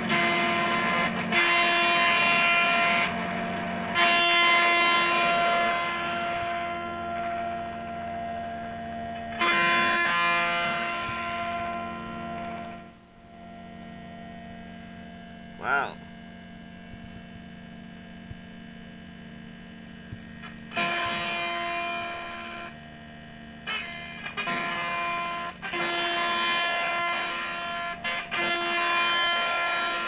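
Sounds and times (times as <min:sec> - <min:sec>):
distorted electric guitar chords: 0:00.0 - 0:30.0.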